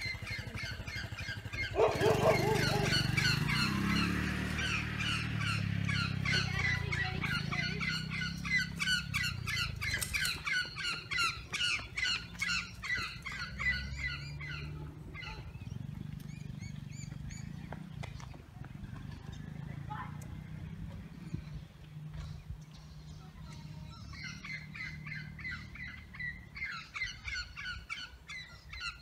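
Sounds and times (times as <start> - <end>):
bird squawking chirps: 0.0 - 17.6, 23.5 - 29.0.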